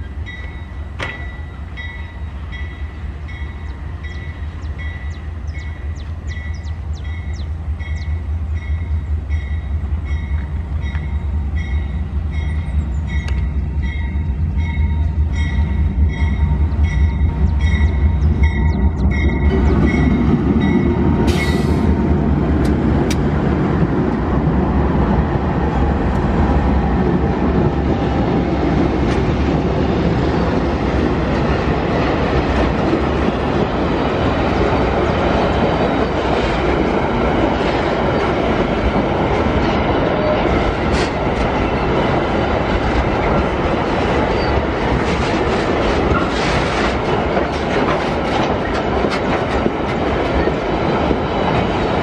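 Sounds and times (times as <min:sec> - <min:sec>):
diesel locomotives rumbling: 0:00.0 - 0:52.0
clickety-clack of wagon wheels: 0:40.8 - 0:52.0.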